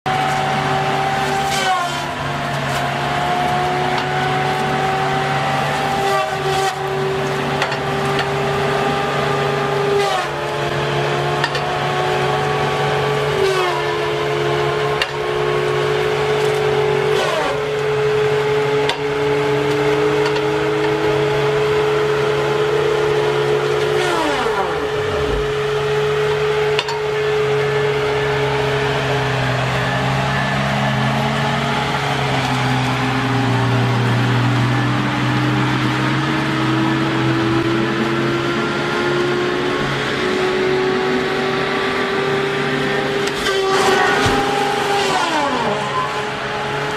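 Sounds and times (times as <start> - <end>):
machine engine running: 0.1 - 37.4.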